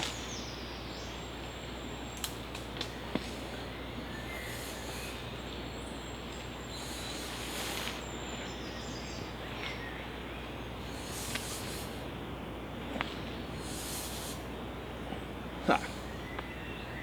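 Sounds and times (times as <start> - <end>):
rustle: 0.0 - 17.0
faint bird chirps: 3.5 - 11.9.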